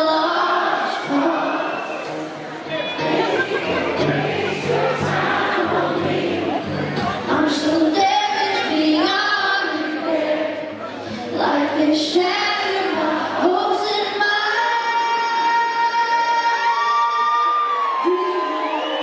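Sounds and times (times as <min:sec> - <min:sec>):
live band playing: 0:00.8 - 0:09.3.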